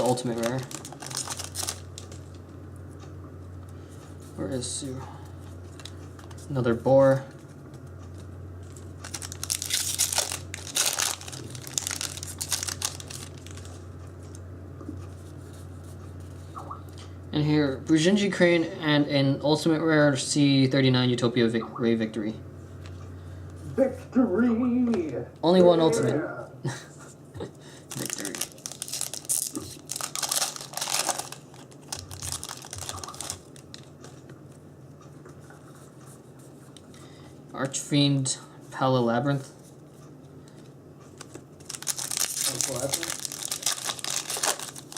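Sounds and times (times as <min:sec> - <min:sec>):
foil pack tearing and crinkling: 0:00.0 - 0:02.2, 0:09.0 - 0:13.8, 0:27.9 - 0:33.9, 0:41.6 - 0:44.9.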